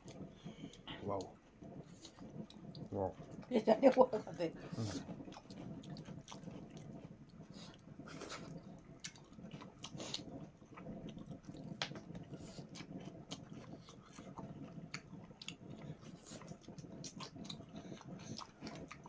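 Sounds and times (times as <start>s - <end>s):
people chewing and biting food: 4.7s - 19.0s
food crunching: 4.8s - 19.0s.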